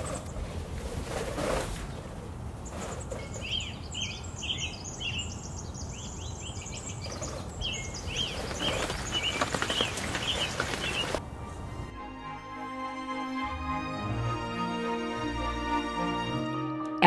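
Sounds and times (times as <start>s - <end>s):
small birds chirping: 1.9s - 11.6s.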